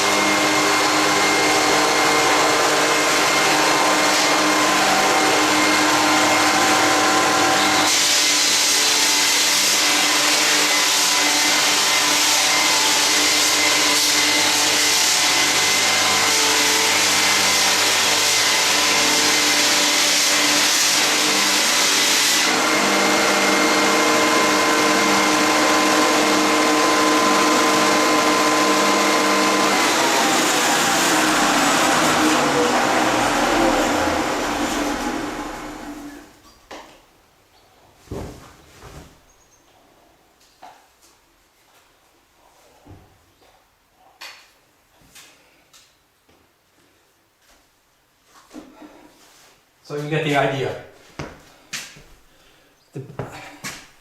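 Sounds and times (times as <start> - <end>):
floor sander motor hum: 0.0 - 36.3.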